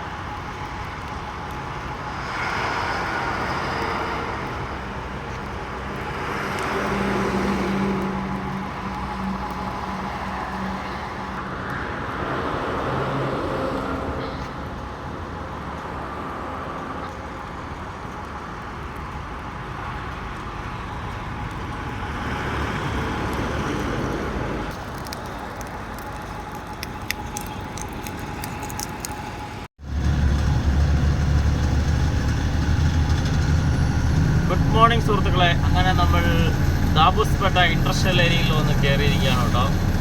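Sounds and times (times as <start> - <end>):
road traffic noise: 0.0 - 40.0
truck engine droning: 25.7 - 40.0
vehicle passing: 29.8 - 40.0.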